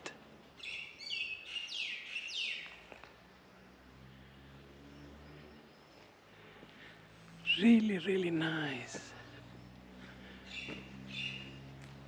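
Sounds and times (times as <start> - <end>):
bird chirping: 0.6 - 2.9, 7.4 - 11.8.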